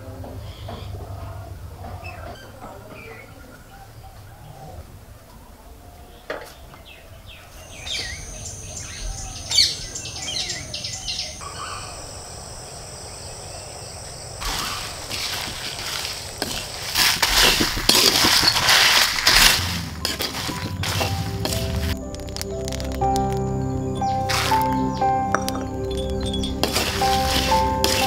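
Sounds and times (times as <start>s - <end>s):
small birds chirping: 0.3s - 28.0s
steady high-pitched hum: 7.5s - 17.0s
scratchy rustling noise: 14.4s - 22.9s, 26.6s - 28.0s.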